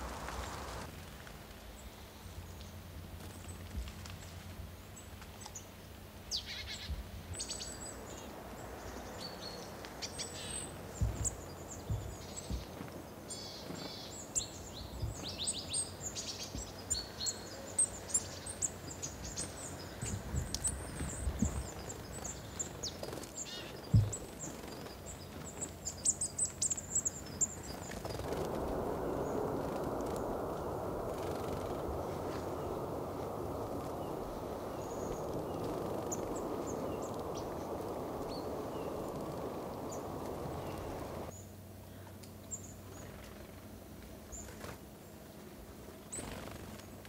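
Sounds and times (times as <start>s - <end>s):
steady rushing noise: 0.0s - 1.5s, 27.2s - 41.3s
wild birds chirping: 4.2s - 45.2s
dull low thumps: 10.9s - 12.7s, 23.9s - 24.2s.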